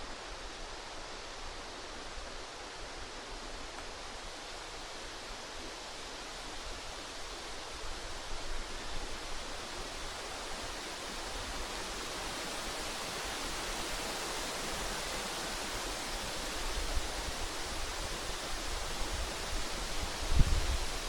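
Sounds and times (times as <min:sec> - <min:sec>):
rushing wind: 0:07.4 - 0:21.0
wind buffeting microphone: 0:16.8 - 0:21.0.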